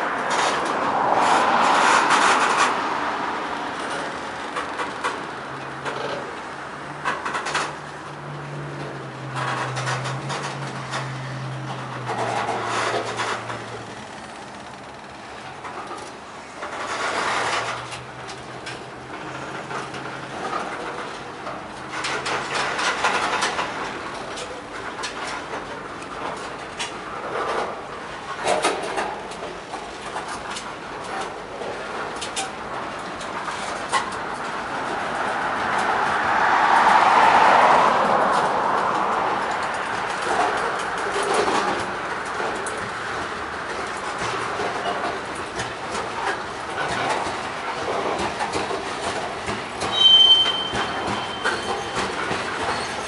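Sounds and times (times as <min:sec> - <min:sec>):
train rolling rumble: 0:00.0 - 0:53.0
train wheels clacking over rail joints: 0:00.1 - 0:53.0
freight train rolling past: 0:34.5 - 0:43.8, 0:46.3 - 0:53.0.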